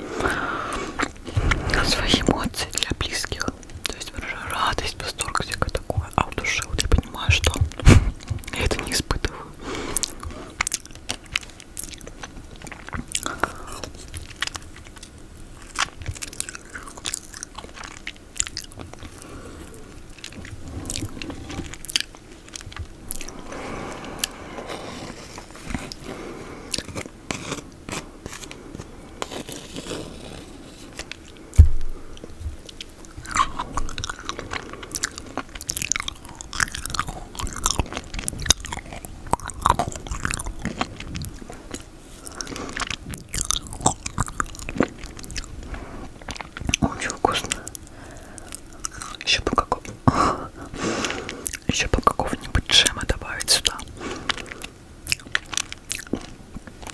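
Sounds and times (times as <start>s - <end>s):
chewing: 0.0s - 56.9s
lip and tongue clicks: 46.2s - 56.9s.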